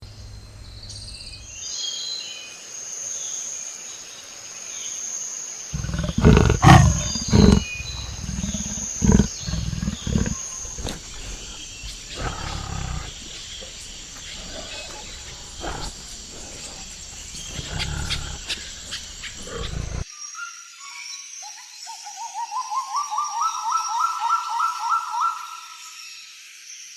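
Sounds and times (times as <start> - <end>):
high insect drone: 1.7 - 20.1
deep animal roars: 5.8 - 20.0.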